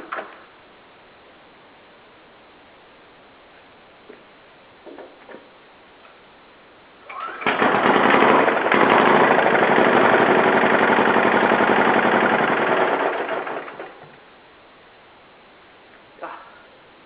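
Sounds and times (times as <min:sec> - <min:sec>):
diesel engine starting and running: 0:07.2 - 0:14.2.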